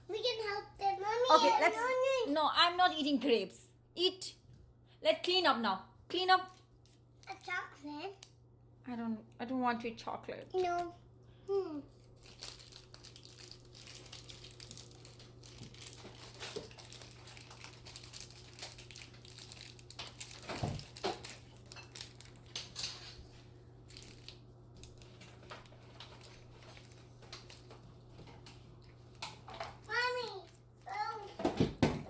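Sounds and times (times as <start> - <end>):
packaging crinkling: 12.0 - 30.8.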